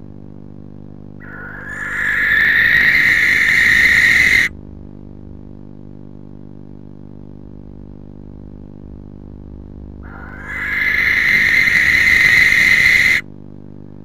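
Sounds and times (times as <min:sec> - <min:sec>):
low electrical hum: 0:00.0 - 0:14.0
owl hissing call: 0:01.2 - 0:04.5, 0:10.0 - 0:13.3.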